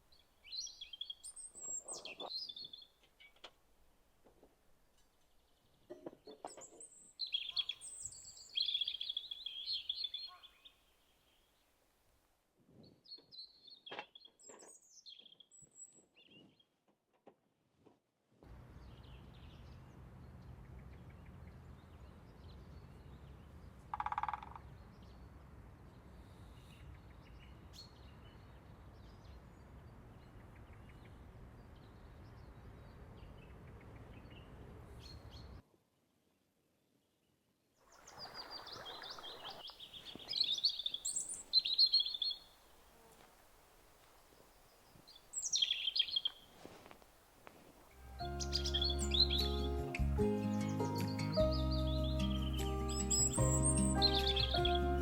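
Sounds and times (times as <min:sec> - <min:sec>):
birds chirping: 0:00.0 - 0:03.5, 0:05.0 - 0:11.4, 0:37.9 - 0:43.3, 0:44.1 - 0:46.6, 0:48.0 - 0:55.0.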